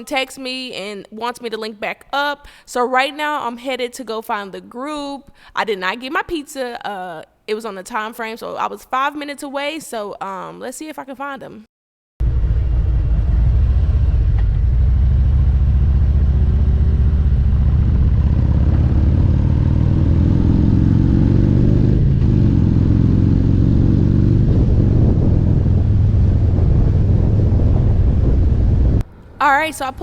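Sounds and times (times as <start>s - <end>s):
motorcycle engine under load: 12.2s - 29.3s.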